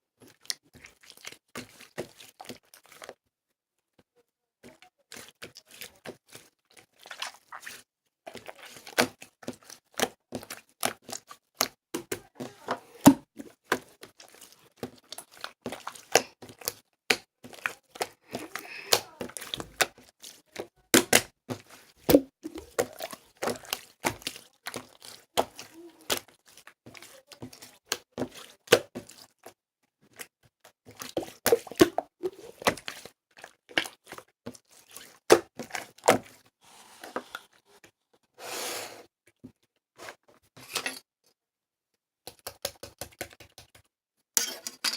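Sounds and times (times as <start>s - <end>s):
clicks and knocks of small objects: 42.3s - 44.9s.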